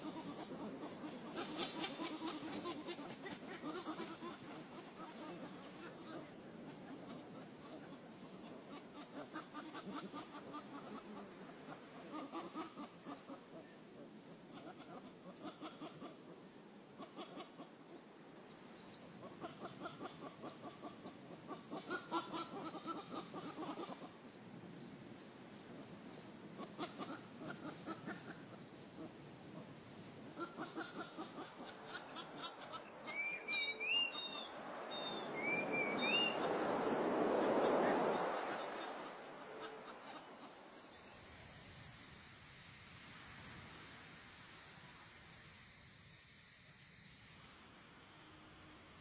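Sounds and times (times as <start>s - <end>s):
bird chattering calls: 0.0s - 5.5s, 26.6s - 36.6s
high insect whine: 0.0s - 48.8s.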